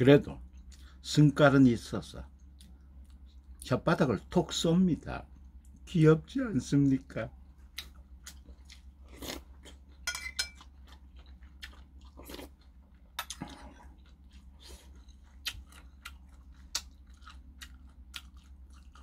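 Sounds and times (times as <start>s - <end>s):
chewing with wet mouth clicks: 2.3s - 3.7s, 7.6s - 10.0s, 10.6s - 19.0s
metal spoon clinking ceramic bowl: 10.0s - 10.6s.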